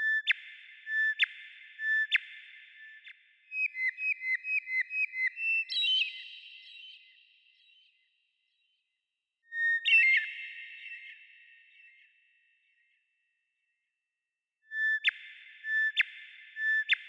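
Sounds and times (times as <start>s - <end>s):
songbird singing: 0.0s - 8.0s, 9.5s - 11.8s.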